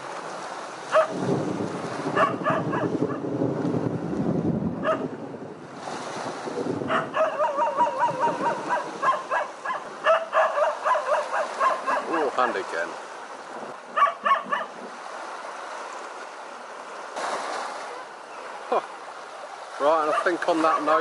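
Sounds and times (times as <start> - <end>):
dog yapping: 0.9 - 1.1, 2.2 - 2.9, 4.8 - 5.0, 6.9 - 12.2, 14.0 - 14.7.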